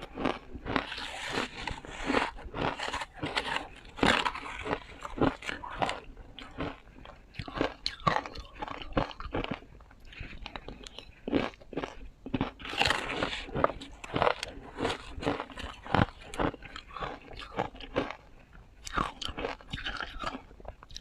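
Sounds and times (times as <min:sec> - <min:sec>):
ice crunching: 0:00.2 - 0:06.8, 0:12.4 - 0:18.1.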